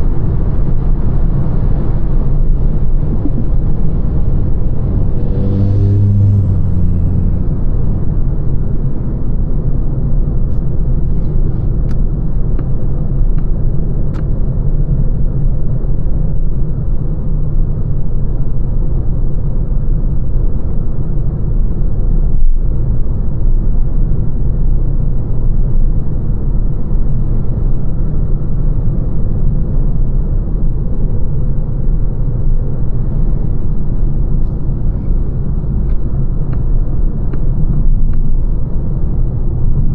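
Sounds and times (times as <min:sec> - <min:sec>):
low pitched hum: 0:00.0 - 0:13.6
road and tyre rumble: 0:00.0 - 0:39.9.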